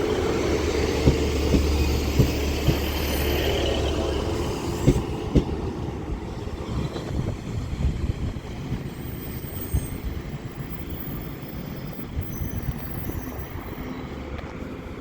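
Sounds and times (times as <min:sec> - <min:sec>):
train engine and wheel rumble: 0:00.0 - 0:15.0
high wheel squeals: 0:08.8 - 0:14.2.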